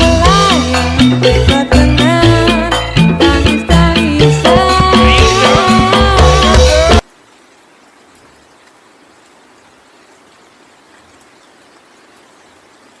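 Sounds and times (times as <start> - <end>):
music: 0.0 - 7.0
faint hiss of falling rain: 5.3 - 13.0.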